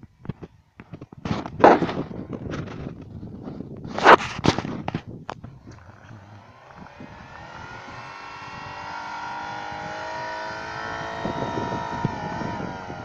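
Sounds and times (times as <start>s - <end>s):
car engine revving hard: 5.7s - 13.0s.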